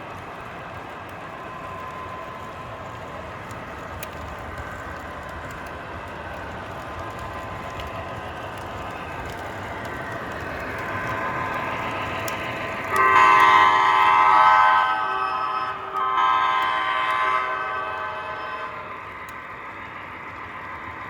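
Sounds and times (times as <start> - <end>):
multi-note air horn: 12.9 - 18.8.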